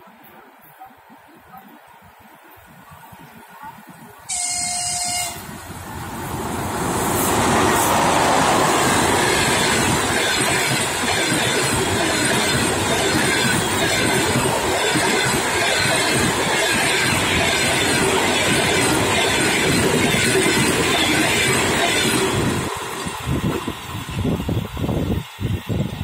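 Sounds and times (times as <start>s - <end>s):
locomotive horn blast: 4.3s - 5.6s
train rushing past: 4.3s - 26.0s.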